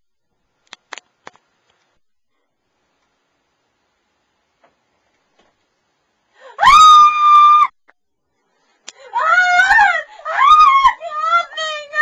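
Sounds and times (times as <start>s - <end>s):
girl screaming: 6.6s - 7.8s, 9.1s - 12.0s
girl sobbing cry: 9.0s - 12.0s.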